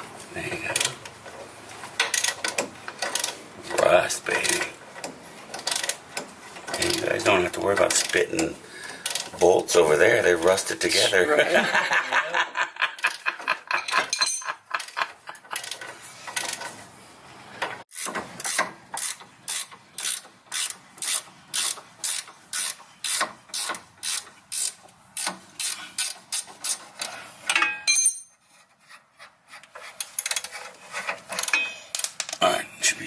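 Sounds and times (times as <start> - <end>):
ratchet wrench clicking: 2.0 - 3.4, 5.5 - 7.1, 9.0 - 9.3, 18.0 - 27.2.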